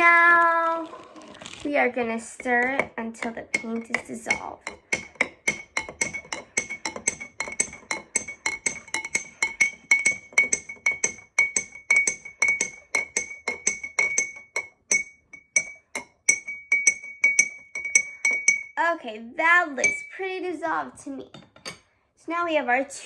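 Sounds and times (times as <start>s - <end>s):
utensil clinking in a cup: 1.3s - 18.8s.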